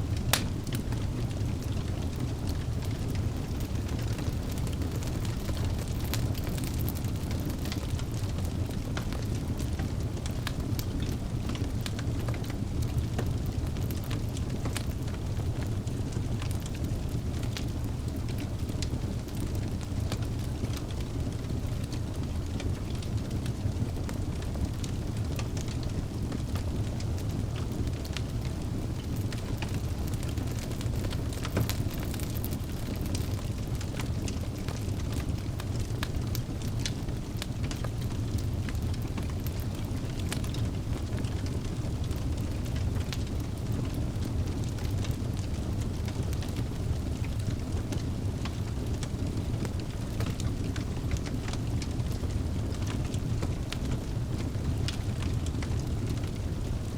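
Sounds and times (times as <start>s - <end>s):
fire crackling and popping: 0.0s - 56.9s
fire roaring: 0.0s - 56.9s.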